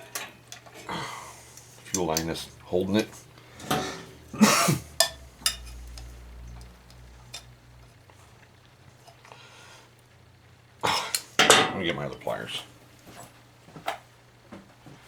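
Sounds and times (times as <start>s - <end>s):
metal tools clinking and scraping: 5.0s - 6.6s.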